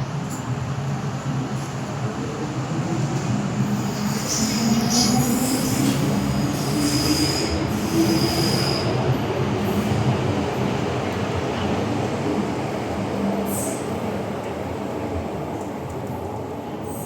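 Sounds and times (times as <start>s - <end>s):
metro train running noise: 0.0s - 17.0s
high-pitched brake squeal: 4.1s - 9.0s.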